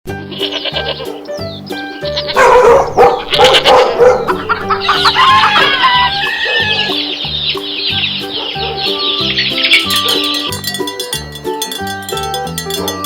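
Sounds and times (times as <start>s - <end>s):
chicken clucking: 2.4s - 10.5s
rooster crowing: 2.4s - 10.5s.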